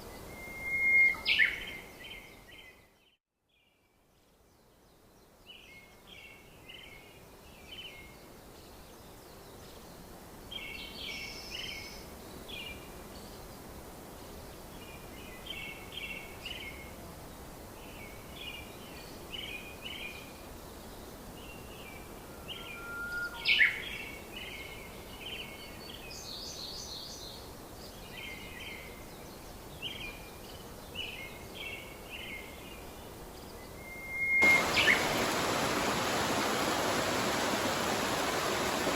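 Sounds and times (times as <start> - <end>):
steady background hiss: 3.5 - 38.9
birds chirping: 34.4 - 38.9.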